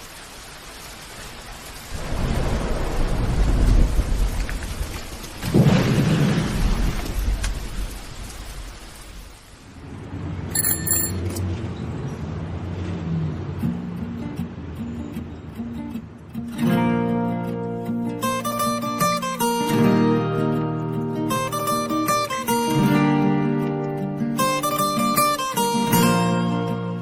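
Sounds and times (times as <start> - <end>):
steady rain: 0.0 - 27.0
thunder rumbles: 1.8 - 10.5
music with high chime: 10.6 - 11.4.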